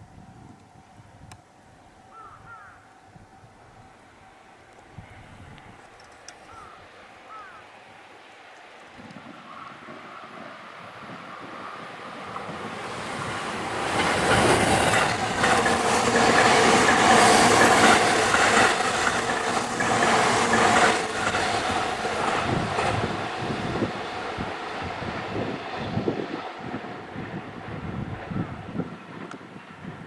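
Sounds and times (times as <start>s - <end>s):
electric train passing at speed: 0.0s - 30.0s
wheels clattering over rail joints: 12.4s - 24.6s.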